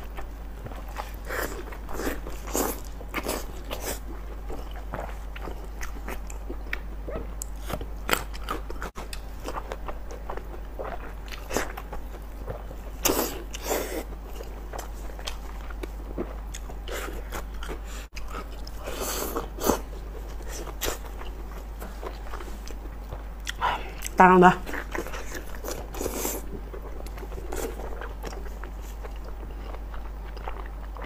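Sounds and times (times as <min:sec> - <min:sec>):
wet chewing: 0:00.0 - 0:31.0.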